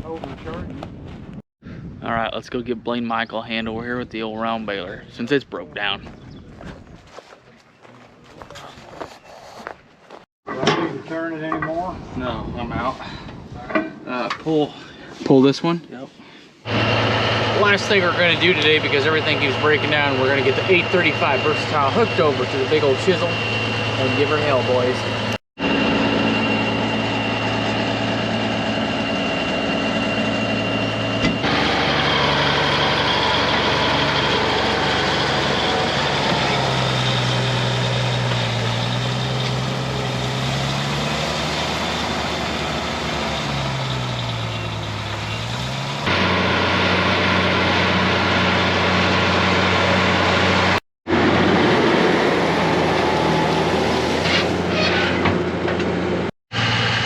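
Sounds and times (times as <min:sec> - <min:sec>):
tractor diesel engine running: 0:16.7 - 0:57.0.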